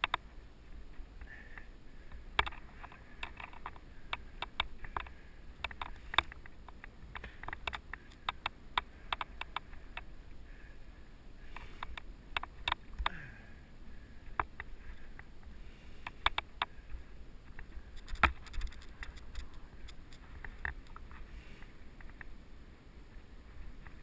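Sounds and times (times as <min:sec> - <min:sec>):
mountain bike rattling: 0:17.6 - 0:21.2.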